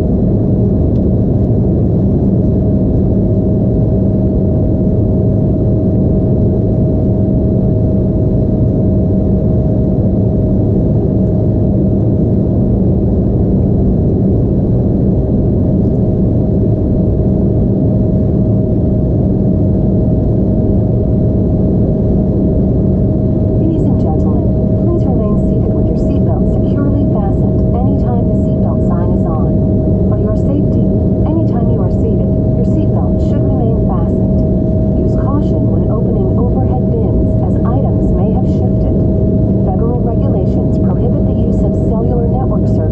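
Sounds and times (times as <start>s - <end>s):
constant whine: 0.0s - 42.9s
jet engine hum in cabin: 0.0s - 42.9s.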